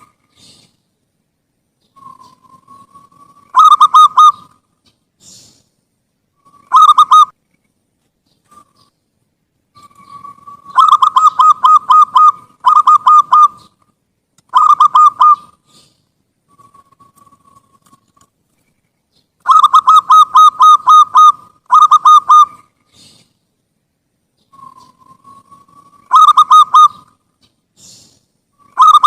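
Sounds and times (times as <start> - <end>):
dove cooing rapidly: 2.0 - 4.6, 6.5 - 7.3, 9.8 - 13.8, 14.5 - 17.7, 19.4 - 23.3, 24.6 - 27.2, 27.8 - 29.0.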